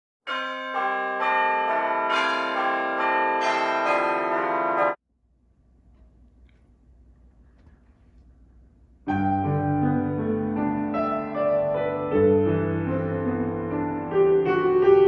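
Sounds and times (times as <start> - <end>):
church bells ringing: 0.2 - 5.0.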